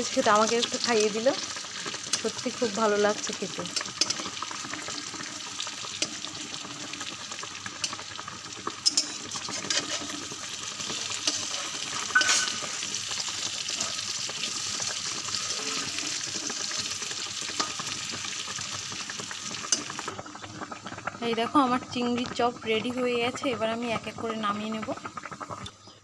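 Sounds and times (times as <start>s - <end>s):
food sizzling in hot oil: 0.0s - 26.0s
metal spatula scraping pan: 8.8s - 12.9s, 15.3s - 18.0s.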